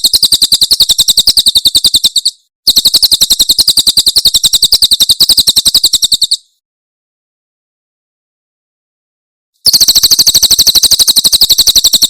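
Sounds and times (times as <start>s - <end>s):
bird rapid high-pitched song: 0.0s - 6.6s, 9.6s - 12.0s.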